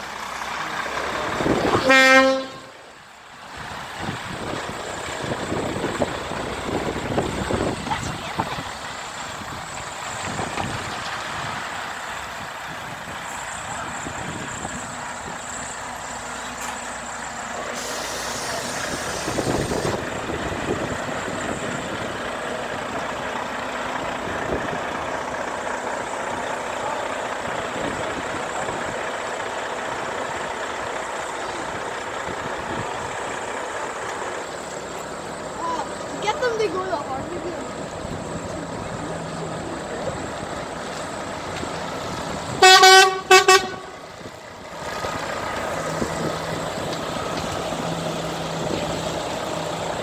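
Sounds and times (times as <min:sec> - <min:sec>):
heavy trucks passing: 0:00.0 - 0:50.0
air brake hiss: 0:17.6 - 0:20.0.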